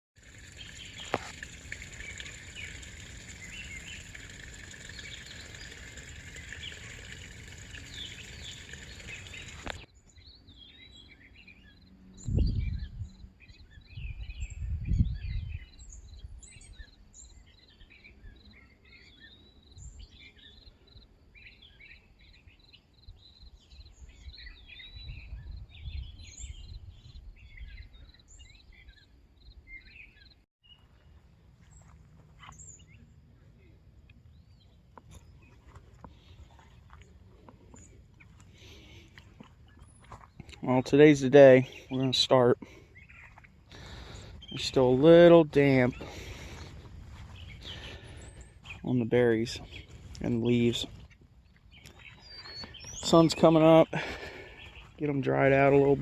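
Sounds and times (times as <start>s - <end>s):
small birds chirping: 0.2s - 56.0s
low rumbles on microphone: 12.2s - 13.2s.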